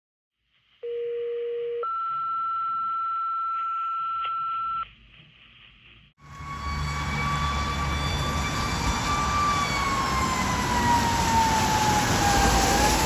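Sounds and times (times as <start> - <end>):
two-tone radio alert: 0.8 - 4.9
fire engine siren: 6.2 - 13.0.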